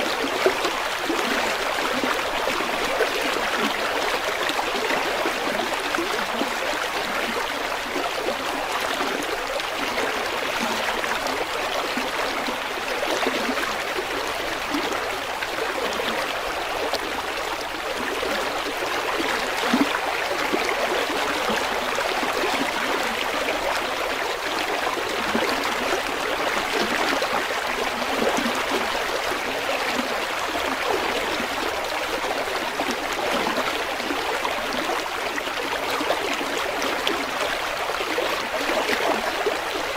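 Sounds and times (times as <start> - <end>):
river water babbling over rocks: 0.0 - 39.9.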